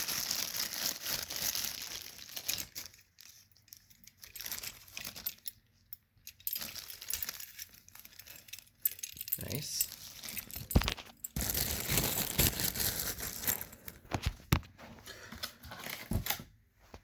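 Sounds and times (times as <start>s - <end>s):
packaging crinkling: 0.0s - 5.4s, 9.4s - 14.5s.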